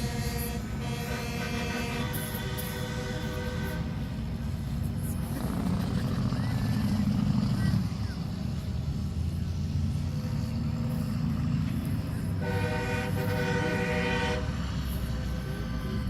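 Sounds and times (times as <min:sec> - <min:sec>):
truck air horn: 0:00.0 - 0:04.3, 0:12.4 - 0:15.8
truck engines rumbling: 0:00.0 - 0:16.0.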